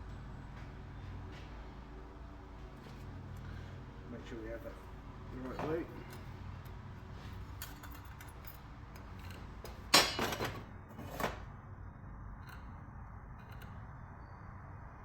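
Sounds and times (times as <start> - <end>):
sheet metal clanking in vise: 9.9 - 11.4.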